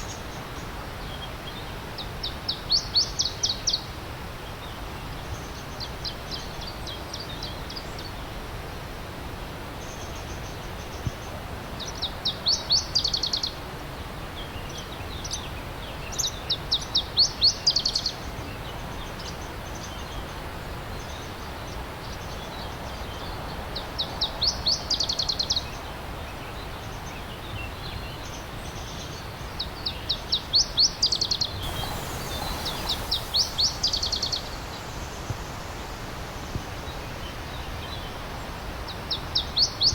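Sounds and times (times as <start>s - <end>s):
stream rushing: 31.6s - 38.9s.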